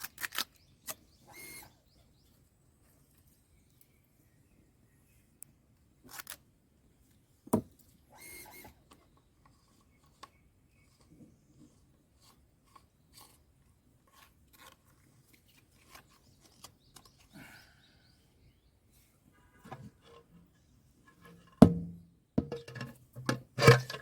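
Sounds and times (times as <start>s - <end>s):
plastic parts clicking and scraping: 0.0s - 1.6s, 6.1s - 6.4s, 8.2s - 17.3s, 19.6s - 24.0s
sharp knock: 21.6s - 22.7s.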